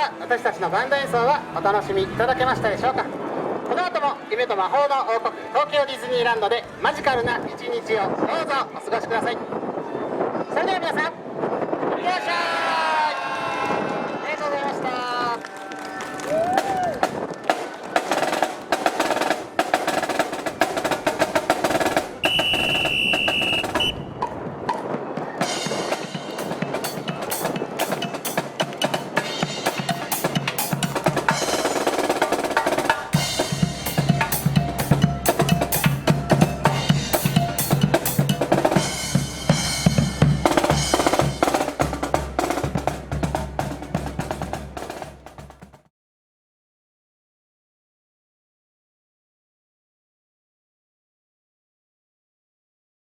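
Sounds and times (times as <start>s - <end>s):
wind buffeting microphone: 6.6s - 12.1s, 20.4s - 27.8s
snare drum rolls and rim shots: 16.4s - 24.0s, 24.7s - 45.9s
snare drum cadence: 22.2s - 24.0s
bass drum beats: 33.2s - 45.8s.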